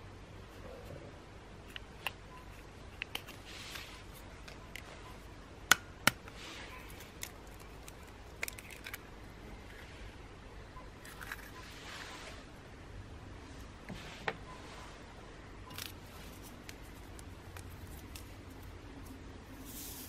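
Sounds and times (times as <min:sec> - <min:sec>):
faint hiss: 0:19.4 - 0:20.0.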